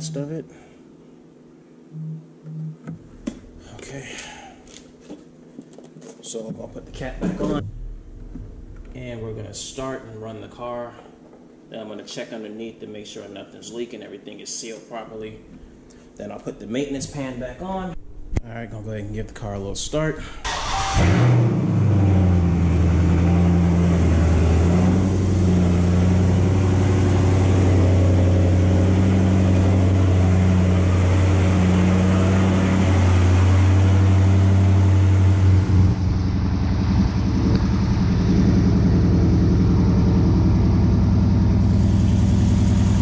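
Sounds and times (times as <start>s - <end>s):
car engine idling: 20.4s - 43.0s.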